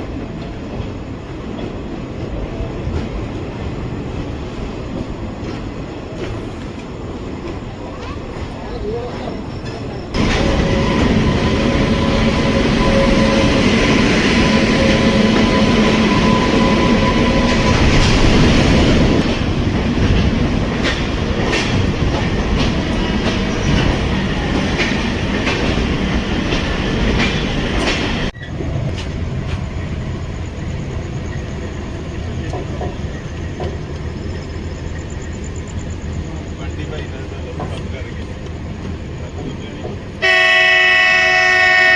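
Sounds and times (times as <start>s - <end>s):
train rumble: 0.0s - 41.9s
wheels clicking over rail joints: 14.4s - 29.9s, 36.9s - 40.2s.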